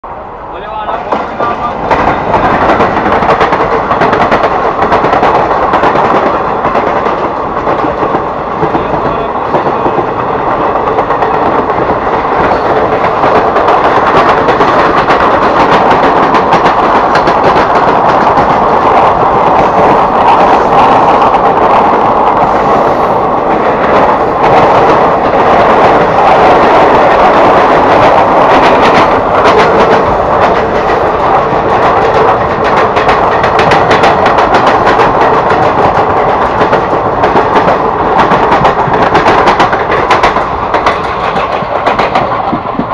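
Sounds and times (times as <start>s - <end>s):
local train running noise: 0.0s - 42.9s
train wheels clattering on rails: 0.6s - 42.9s
clicks over rail joints: 28.6s - 42.9s.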